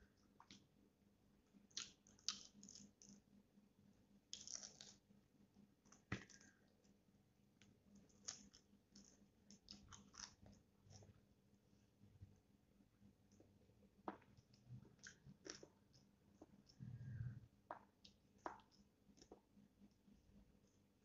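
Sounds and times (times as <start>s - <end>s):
mouth clicks and smacks: 1.7s - 3.2s, 17.7s - 19.5s
person chewing: 8.1s - 11.2s, 14.1s - 16.8s.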